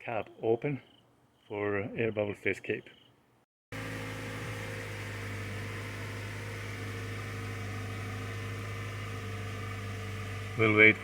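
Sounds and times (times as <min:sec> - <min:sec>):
car engine idling: 0:03.7 - 0:11.0.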